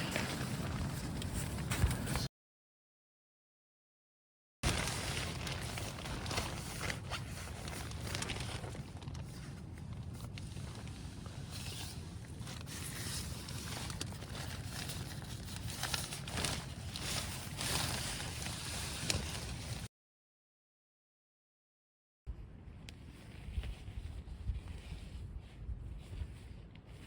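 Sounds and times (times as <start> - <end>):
wind rumbling on microphone: 0.0 - 2.3, 4.6 - 19.9, 22.3 - 27.0
rustling and crackling: 4.6 - 19.9.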